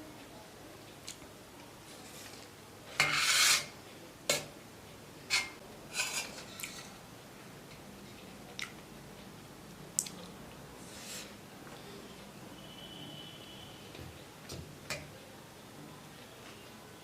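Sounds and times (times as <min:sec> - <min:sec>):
cutlery scraping a plate: 0:02.0 - 0:03.7, 0:05.3 - 0:07.0.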